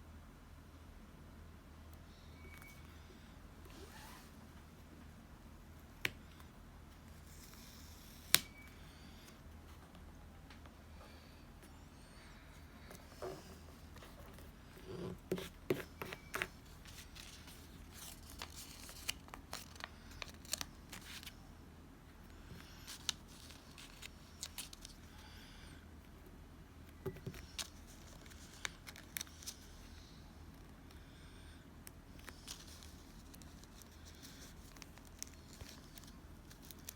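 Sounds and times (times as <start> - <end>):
paper rustling and tearing: 16.9 - 21.3.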